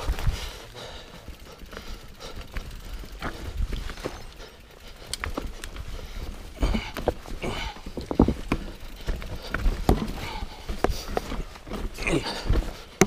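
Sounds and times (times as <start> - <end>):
bike frame rattling: 0.0 - 13.0
bike tyres thudding on rock: 5.1 - 13.0.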